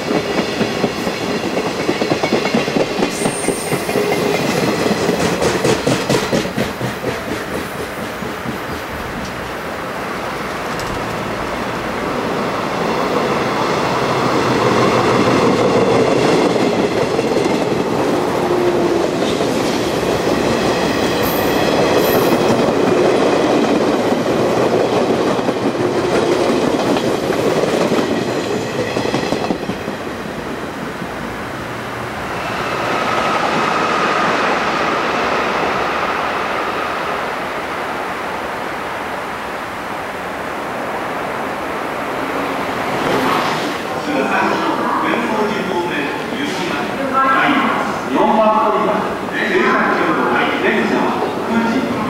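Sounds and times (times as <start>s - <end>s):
approaching train high tone: 0.0s - 5.4s, 17.9s - 23.3s, 31.8s - 37.6s
high whining train tones: 0.0s - 52.0s.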